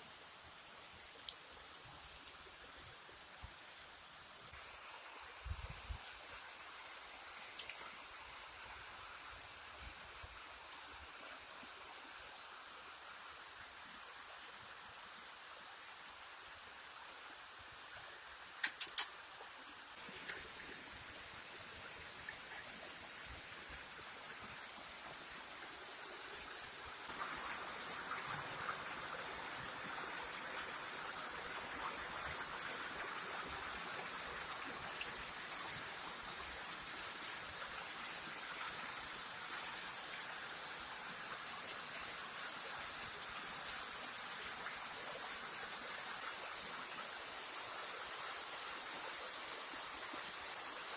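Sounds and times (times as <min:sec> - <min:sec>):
small waterfall rushing: 0:00.0 - 0:50.9
ticks of water: 0:07.4 - 0:08.0, 0:18.6 - 0:19.2
sharp clicks: 0:18.6 - 0:19.2.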